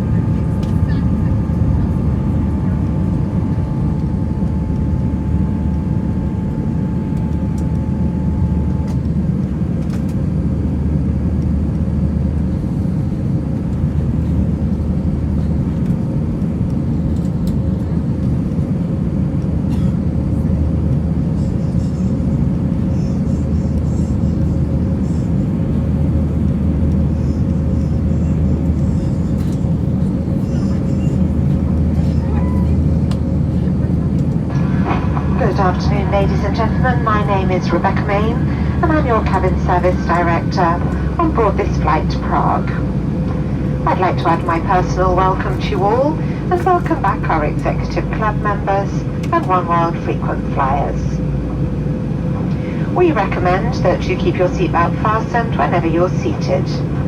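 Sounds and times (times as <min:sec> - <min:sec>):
jet engine roar in cabin: 0:00.0 - 0:57.0
steady hum: 0:00.0 - 0:57.0
high whine: 0:29.5 - 0:57.0.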